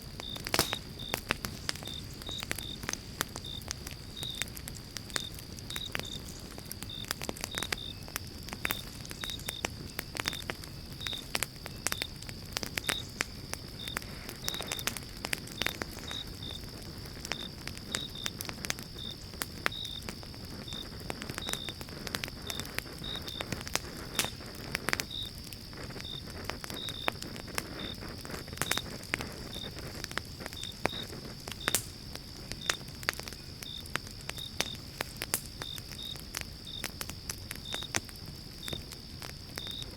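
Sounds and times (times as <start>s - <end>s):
campfire crackling and popping: 0.0s - 39.9s
small regular chirps: 8.8s - 16.7s.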